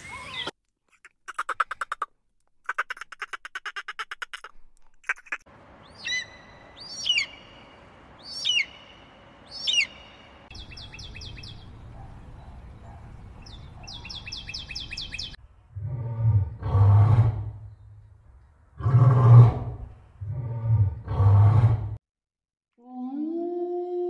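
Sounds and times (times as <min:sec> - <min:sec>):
gulls calling: 0:05.0 - 0:15.4
small bird chirping: 0:05.0 - 0:15.4
lion roars: 0:15.8 - 0:17.6, 0:18.8 - 0:22.0.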